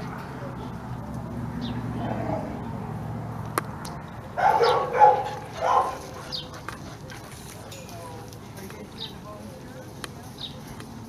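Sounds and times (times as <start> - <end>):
puppy barking: 4.4 - 6.4.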